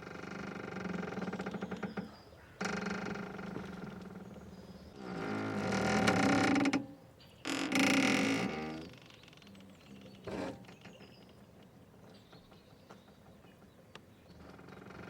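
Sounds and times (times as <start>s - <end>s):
rope creaking under strain: 0.0s - 4.2s, 5.0s - 11.0s.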